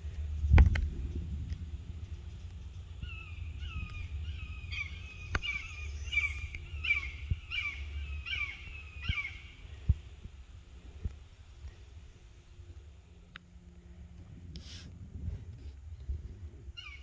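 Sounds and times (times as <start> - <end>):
low wind rumble: 0.0 - 17.0
bird harsh calls: 2.0 - 10.1, 16.8 - 17.0.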